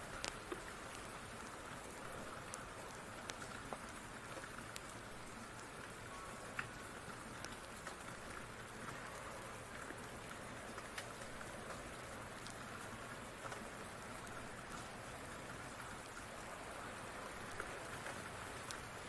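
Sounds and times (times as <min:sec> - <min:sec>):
steady rain: 0:00.0 - 0:19.0
wood fire crackling: 0:00.0 - 0:19.0.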